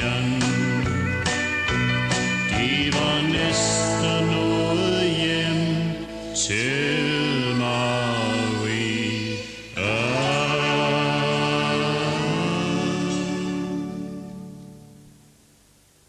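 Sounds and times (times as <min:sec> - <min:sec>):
country band with pedal steel: 0:00.0 - 0:08.6
voices holding long chords: 0:00.0 - 0:15.4.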